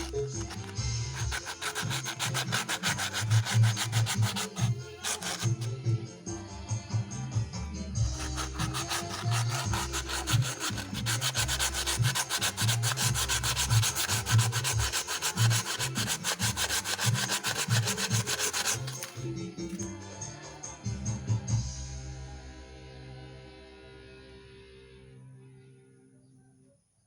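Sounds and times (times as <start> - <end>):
abrasive rubbing on metal: 0.0 - 5.7, 8.1 - 19.8
background music: 0.0 - 26.3.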